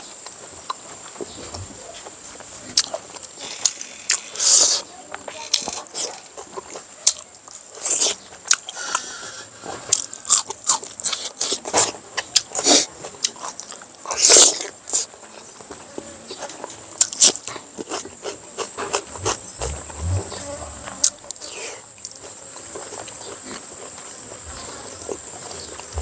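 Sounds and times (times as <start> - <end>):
person chewing and lip smacking: 5.4 - 9.1, 9.9 - 15.1, 17.0 - 26.0
bites and slurps: 5.4 - 15.1, 17.0 - 26.0
mouth clicks: 17.0 - 22.2.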